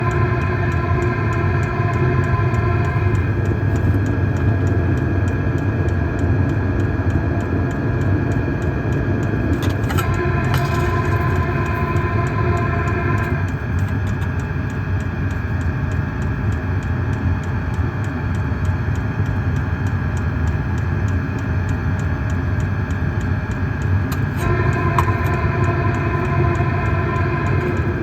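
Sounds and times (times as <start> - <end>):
fuel pump ticking: 0.0 - 16.6, 22.3 - 28.0
heater exhaust rumble: 0.0 - 28.0
high-pitched whine: 0.0 - 28.0.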